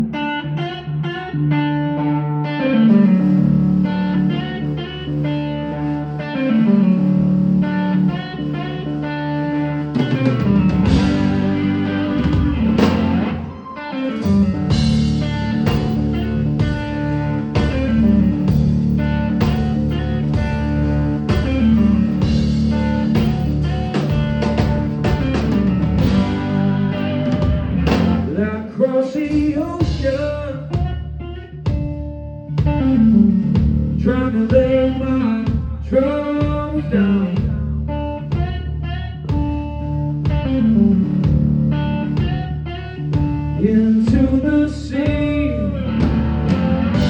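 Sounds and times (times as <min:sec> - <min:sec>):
blues rock band playing: 0:00.0 - 0:28.6, 0:29.2 - 0:47.0
guitar riff: 0:00.0 - 0:47.0
low sliding bass line: 0:00.0 - 0:47.0
drums: 0:02.9 - 0:47.0.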